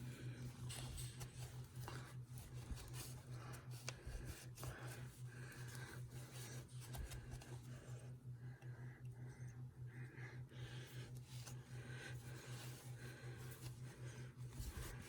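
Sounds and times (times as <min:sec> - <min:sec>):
rubbing and handling noises: 0:00.0 - 0:08.1, 0:10.8 - 0:15.0.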